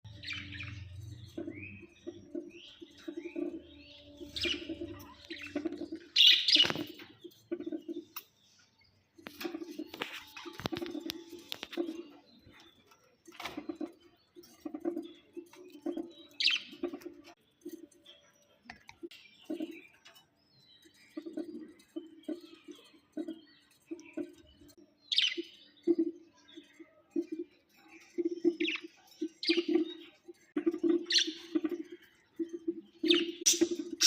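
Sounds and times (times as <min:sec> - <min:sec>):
budgerigars chirping: 0:00.2 - 0:08.0, 0:28.4 - 0:30.0, 0:30.6 - 0:31.8, 0:33.0 - 0:34.0.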